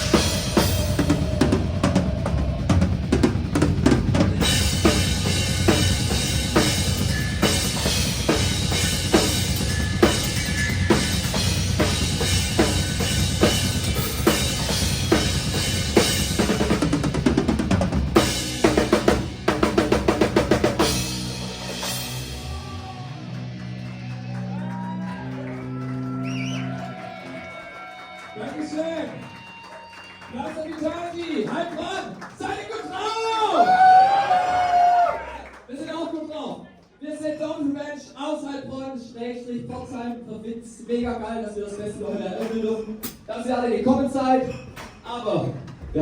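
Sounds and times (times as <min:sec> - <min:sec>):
drum kit played hard: 0:00.0 - 0:24.2
metal band playing: 0:00.0 - 0:26.1.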